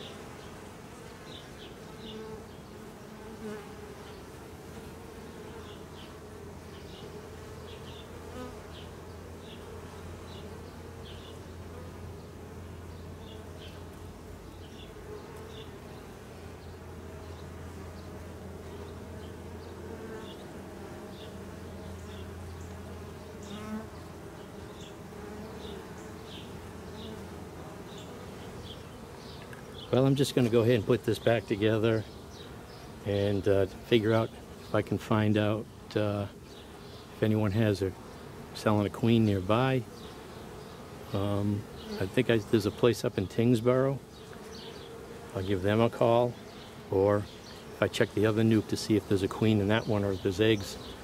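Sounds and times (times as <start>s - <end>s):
bees buzzing: 0.0s - 51.0s.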